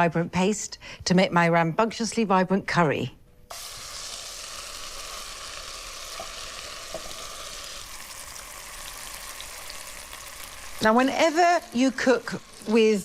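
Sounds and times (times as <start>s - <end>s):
paste sizzling in a hot pan: 3.5s - 13.0s.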